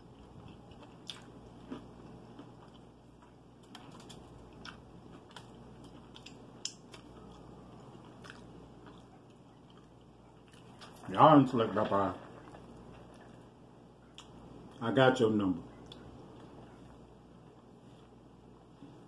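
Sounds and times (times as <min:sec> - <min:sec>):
person chewing: 0:00.0 - 0:11.1, 0:11.8 - 0:14.8
low steady hum: 0:00.0 - 0:19.0.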